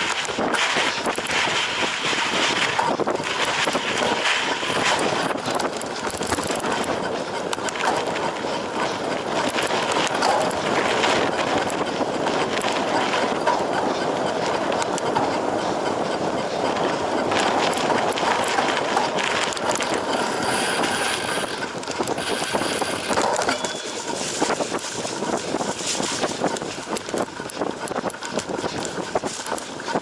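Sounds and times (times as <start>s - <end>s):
tyre noise on rough ground: 0.0s - 13.6s, 17.3s - 30.0s
bike rattling: 0.0s - 30.0s.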